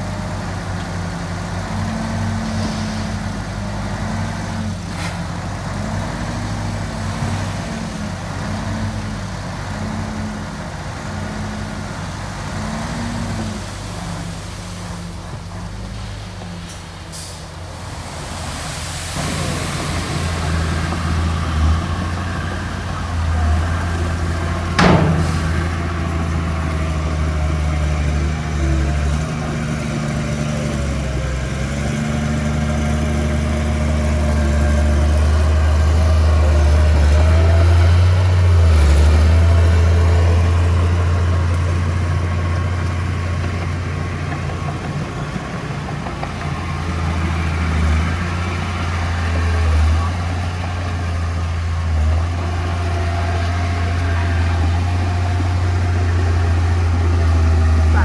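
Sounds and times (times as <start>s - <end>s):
heavy machinery diesel engine: 0.0s - 58.0s
sharp bang: 19.4s - 32.3s.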